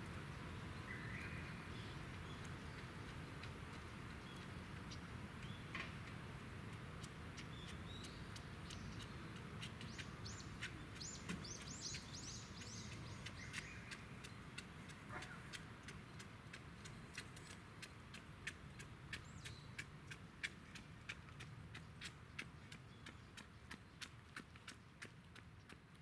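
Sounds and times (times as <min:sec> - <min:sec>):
bird chirping: 0:00.3 - 0:05.8, 0:07.0 - 0:19.9.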